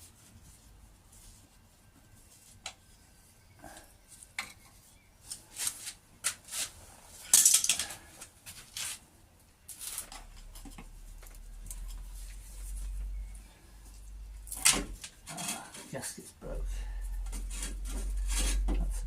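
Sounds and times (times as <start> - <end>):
metal parts scraping and clinking: 7.3 - 8.0.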